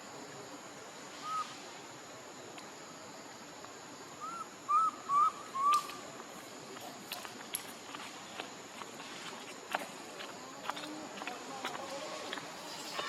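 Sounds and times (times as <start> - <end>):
steady hiss: 0.0 - 13.0
short arching calls: 4.2 - 6.0.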